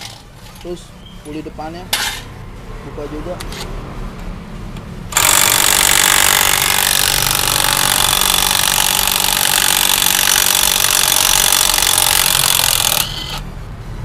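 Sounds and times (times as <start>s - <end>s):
impact wrench hammering: 5.1s - 13.4s.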